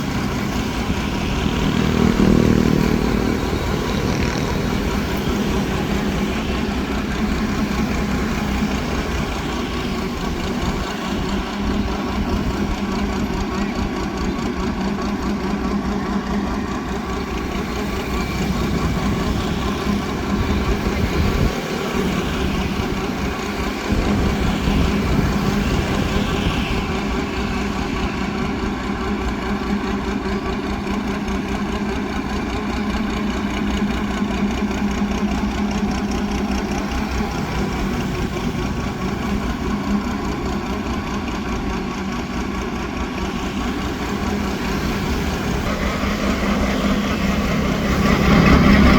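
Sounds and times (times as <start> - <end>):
boat engine droning: 0.0 - 48.9.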